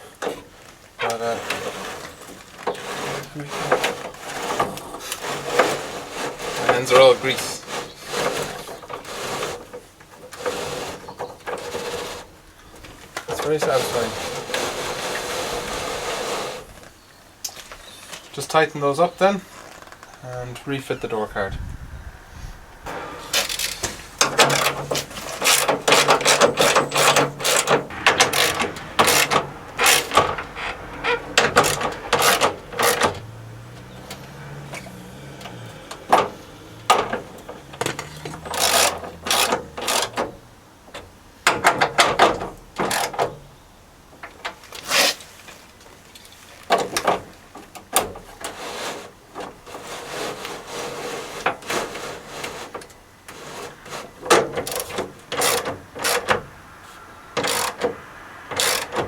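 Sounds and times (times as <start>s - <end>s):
hand ratchet clicking: 23.3s - 33.3s, 36.9s - 40.2s, 54.6s - 56.4s, 57.4s - 59.0s.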